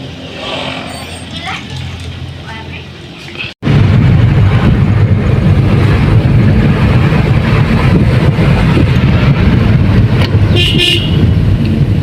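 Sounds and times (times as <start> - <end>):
engine and road noise: 0.0 - 12.0
wind buffeting microphone: 3.4 - 12.0.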